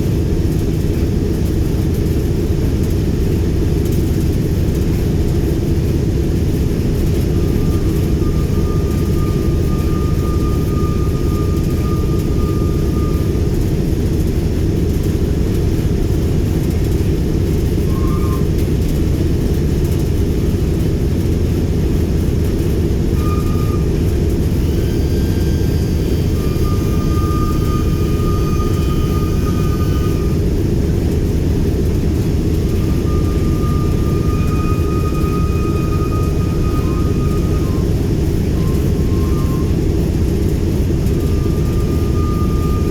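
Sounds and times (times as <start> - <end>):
radial engines rumbling: 0.0 - 42.9
faint thin high tones: 32.8 - 39.8.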